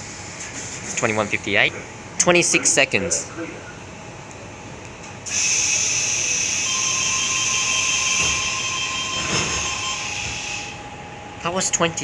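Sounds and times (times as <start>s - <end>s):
loud air hiss: 5.3s - 8.8s, 9.6s - 10.8s.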